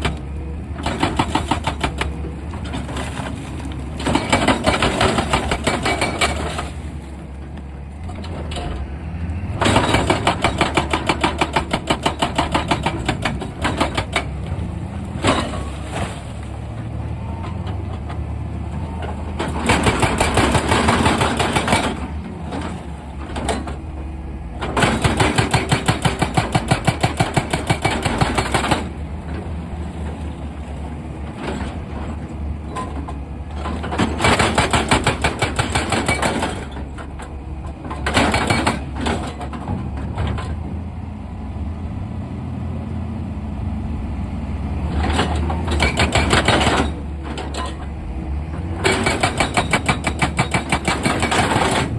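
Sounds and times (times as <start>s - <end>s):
diesel engine running: 0.0s - 51.9s
hydraulic rock breaker hammering: 0.8s - 3.1s, 4.0s - 6.7s, 9.6s - 14.4s, 19.5s - 22.2s, 24.7s - 29.0s, 33.8s - 36.8s, 37.9s - 39.5s, 45.2s - 47.4s, 48.8s - 51.9s.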